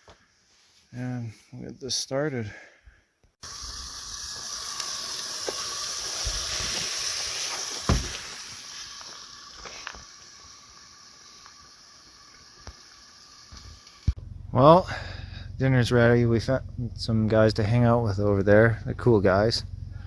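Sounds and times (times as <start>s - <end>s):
propane stove hissing: 3.4s - 15.6s
sharp pops: 4.8s - 9.1s.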